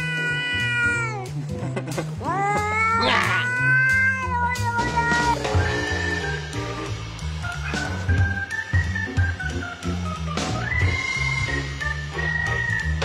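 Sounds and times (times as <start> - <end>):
cat meowing: 0.0 - 1.3, 2.2 - 5.6
background music with bass: 0.0 - 13.0.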